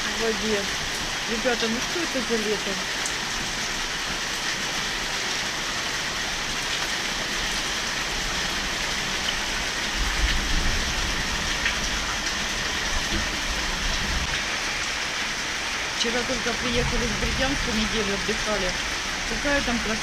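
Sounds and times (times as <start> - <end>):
heavy rain falling: 0.0 - 20.0
low rumble: 16.4 - 20.0.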